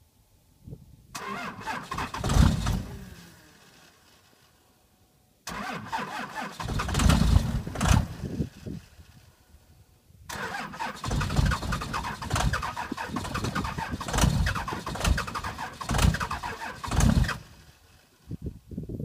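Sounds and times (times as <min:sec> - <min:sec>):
diesel engine running rough: 0:01.3 - 0:04.5, 0:05.5 - 0:09.2, 0:10.3 - 0:18.1.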